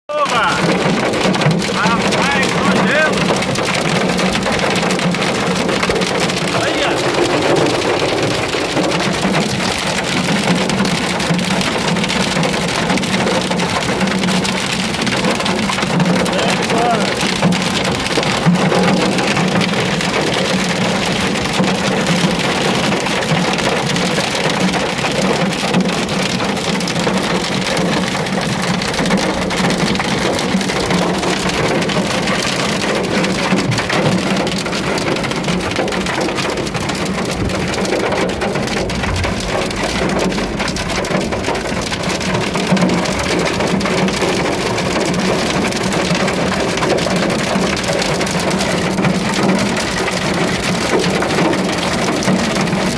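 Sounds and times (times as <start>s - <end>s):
heavy rain and hail drumming: 0.1s - 52.9s
constant low hum: 38.4s - 42.4s.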